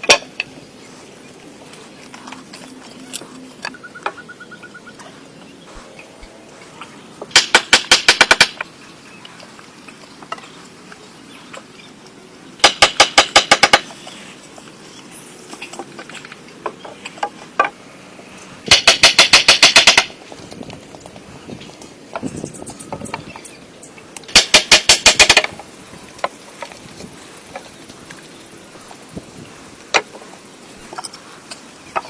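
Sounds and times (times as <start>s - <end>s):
rapid sharp knocking: 7.3s - 8.6s, 12.6s - 13.9s, 18.7s - 20.1s.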